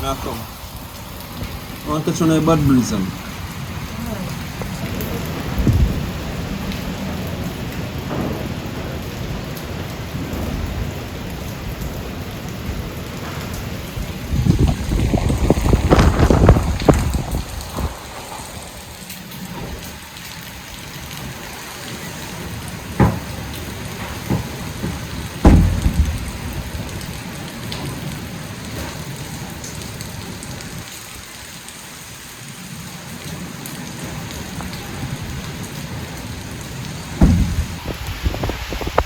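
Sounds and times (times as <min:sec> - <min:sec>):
heavy rain falling: 0:00.0 - 0:39.0
sudden thumps: 0:22.4 - 0:27.2, 0:37.2 - 0:39.0.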